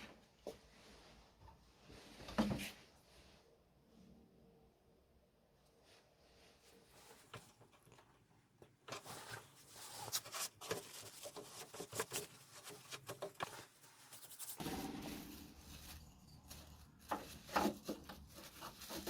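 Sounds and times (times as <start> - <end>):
hand scratching and rubbing wood: 8.9 - 19.0.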